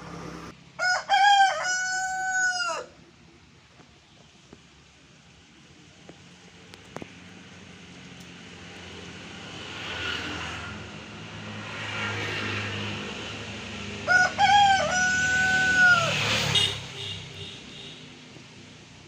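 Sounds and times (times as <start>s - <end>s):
rooster crowing: 0.8s - 3.0s, 14.0s - 16.7s.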